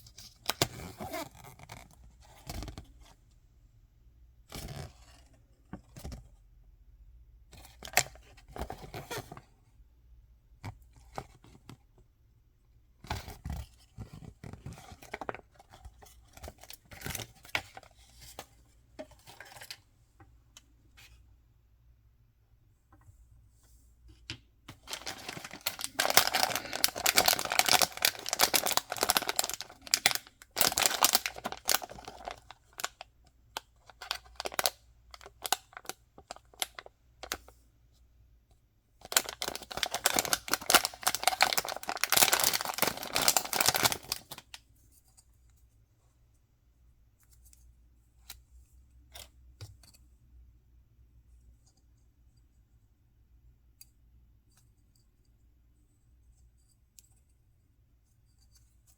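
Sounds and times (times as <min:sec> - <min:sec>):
clicks and rustles: 0:24.2 - 0:33.0
packaging crinkling: 0:24.8 - 0:33.0, 0:33.6 - 0:37.4, 0:39.0 - 0:44.4.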